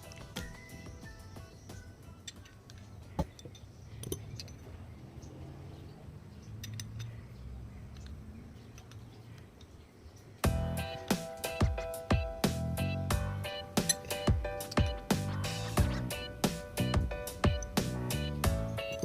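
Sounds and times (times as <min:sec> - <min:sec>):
metal parts clicking and tapping: 0:02.1 - 0:05.4, 0:06.3 - 0:10.4, 0:13.8 - 0:14.9.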